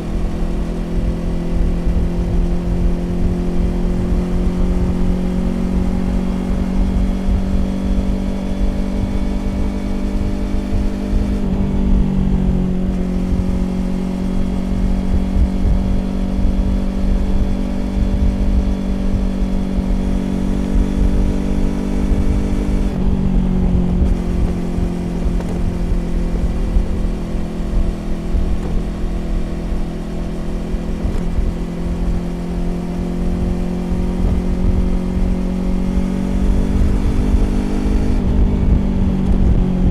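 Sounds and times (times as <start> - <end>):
low wind rumble: 0.0 - 39.9
motorcycle engine cruising: 0.0 - 39.9.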